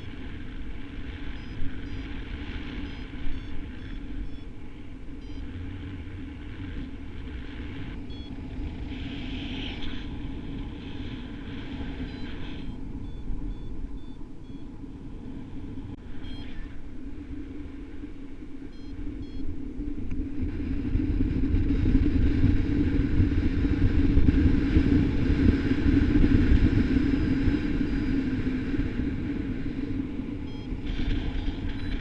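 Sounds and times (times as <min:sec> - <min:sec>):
wind buffeting microphone: 0:00.0 - 0:32.0
short high beeps: 0:01.3 - 0:02.1, 0:02.8 - 0:04.5, 0:05.2 - 0:05.4, 0:08.1 - 0:08.3, 0:12.0 - 0:14.7, 0:15.6 - 0:16.8, 0:18.7 - 0:19.5, 0:30.5 - 0:32.0.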